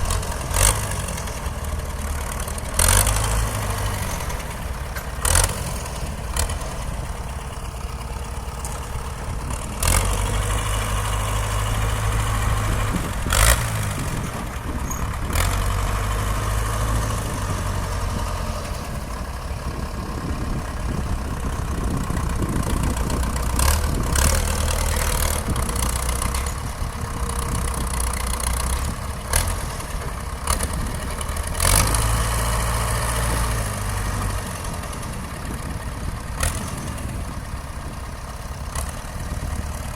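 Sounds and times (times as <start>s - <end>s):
engine knocks: 0.0s - 39.9s
tractor diesel engine under load: 0.0s - 39.9s.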